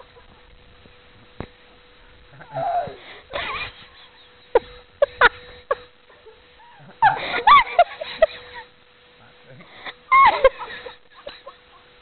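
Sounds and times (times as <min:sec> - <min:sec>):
person breathy vocal sounds: 0:02.3 - 0:03.3.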